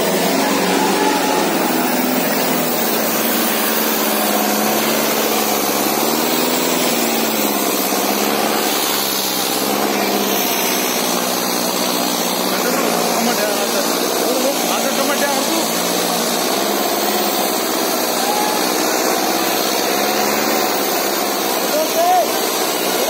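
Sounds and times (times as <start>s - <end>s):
tractor diesel engine revving: 0.0s - 23.0s.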